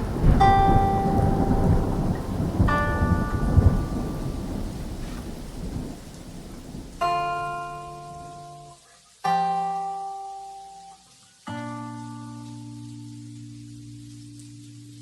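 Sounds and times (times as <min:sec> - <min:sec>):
guitar chords ringing: 0:00.0 - 0:04.2, 0:07.0 - 0:15.0
rolling thunder: 0:00.0 - 0:08.4
rain: 0:00.0 - 0:15.0.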